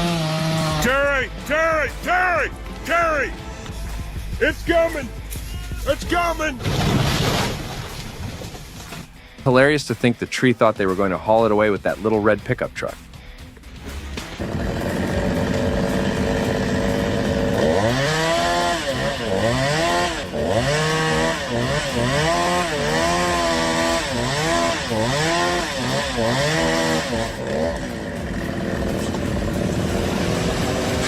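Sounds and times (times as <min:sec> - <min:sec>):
chainsaw revving: 0:00.0 - 0:01.8, 0:14.4 - 0:31.0.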